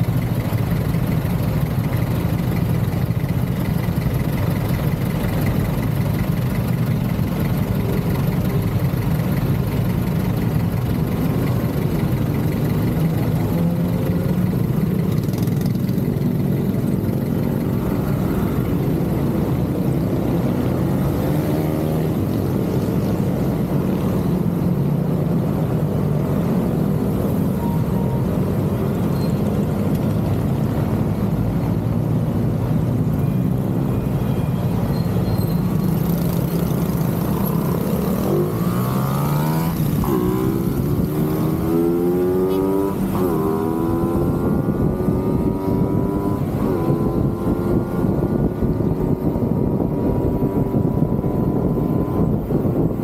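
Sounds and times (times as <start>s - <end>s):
motorcycle engines: 0.0s - 53.0s
wind rushing over microphone: 36.9s - 53.0s.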